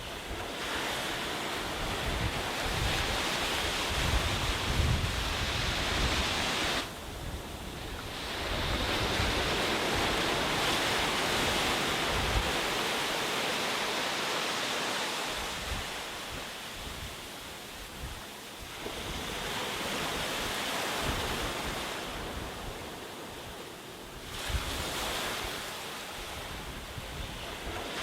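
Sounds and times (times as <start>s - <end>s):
wind buffeting microphone: 0.0s - 13.4s, 24.1s - 28.0s
sea waves washing onto beach: 0.0s - 28.0s.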